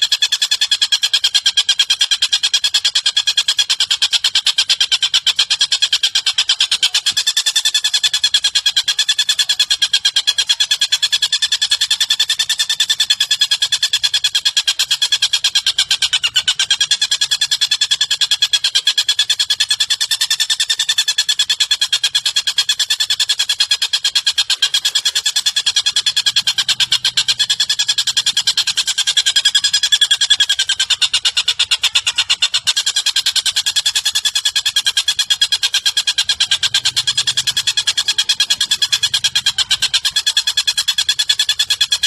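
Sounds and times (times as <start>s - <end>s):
bird call rattle: 0.0s - 42.0s.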